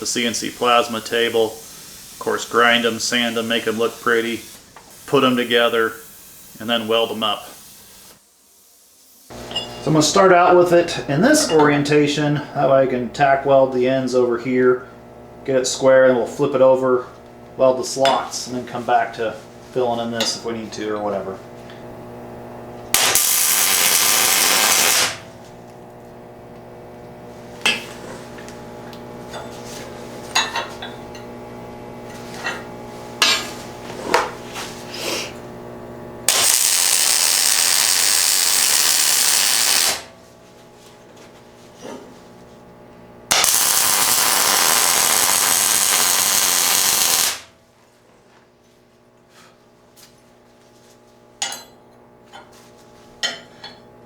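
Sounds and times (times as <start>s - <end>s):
arc welding crackling hiss: 0.0s - 10.7s, 22.8s - 25.5s, 36.3s - 40.2s, 43.3s - 47.6s.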